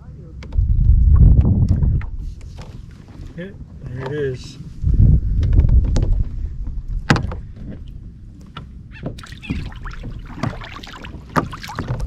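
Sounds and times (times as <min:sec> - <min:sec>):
wind rumble on microphone: 0:00.0 - 0:12.0
knocks against kayak hull: 0:07.0 - 0:07.9, 0:08.6 - 0:12.0.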